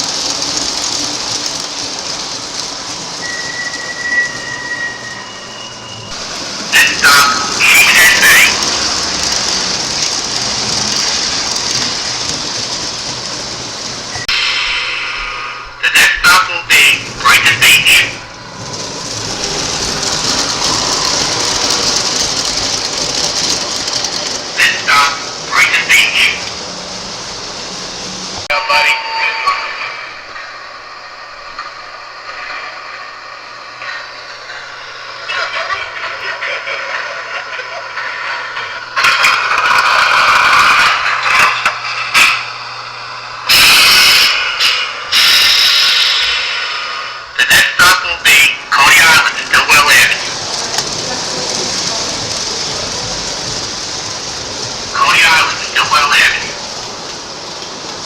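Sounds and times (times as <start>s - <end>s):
model train whirring on track: 0.0s - 58.0s
loud hiss bursts: 6.1s - 18.3s, 38.0s - 58.0s.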